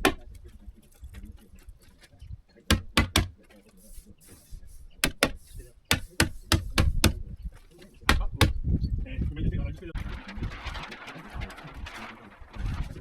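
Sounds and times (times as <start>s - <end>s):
sharp tool knocks: 2.7s - 3.4s, 5.0s - 7.2s, 8.1s - 8.6s.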